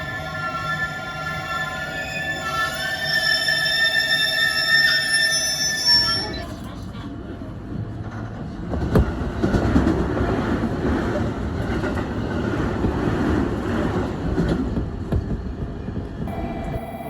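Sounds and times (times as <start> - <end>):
steady tone: 16.3 - 17.0.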